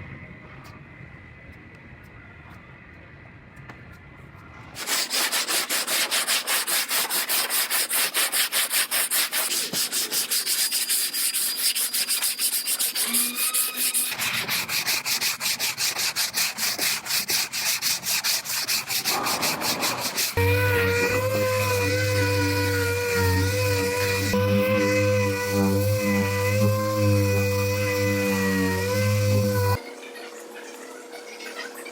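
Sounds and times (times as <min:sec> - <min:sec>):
sanding block rubbing: 0:04.8 - 0:29.8.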